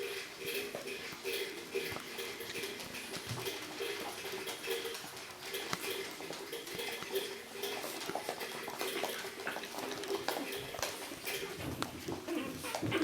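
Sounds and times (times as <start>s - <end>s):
puppies moving with light clicks: 0.0s - 13.0s.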